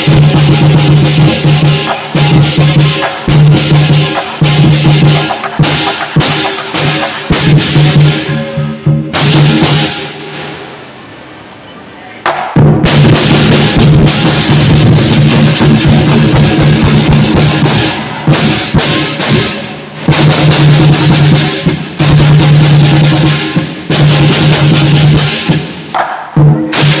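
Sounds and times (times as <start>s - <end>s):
large drum rolls: 0.0s - 10.8s, 12.3s - 27.0s
crashing cymbals: 0.0s - 11.4s.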